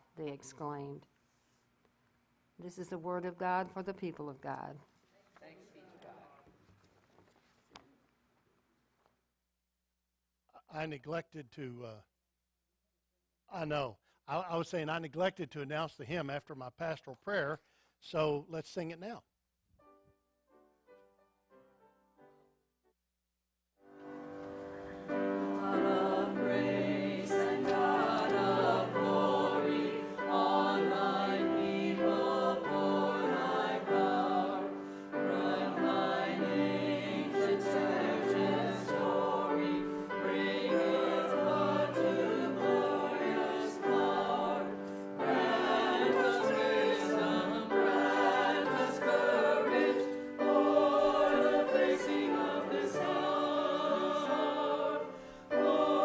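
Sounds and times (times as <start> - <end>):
choir singing a hymn: 24.6 - 56.0.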